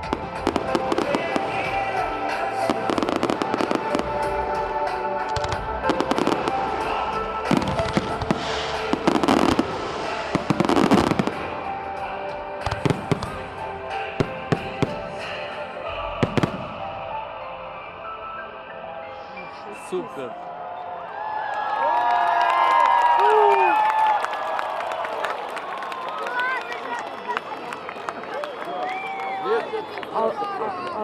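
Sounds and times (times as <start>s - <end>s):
fireworks bangs and crackling: 0.0s - 15.6s, 16.2s - 17.0s
music playing: 0.0s - 21.2s.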